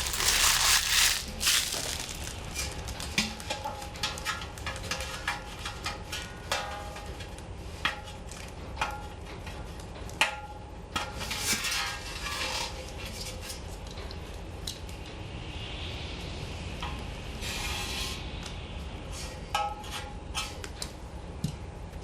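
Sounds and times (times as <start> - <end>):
metal parts clinking: 0.0 - 2.4
rustling: 0.0 - 2.8.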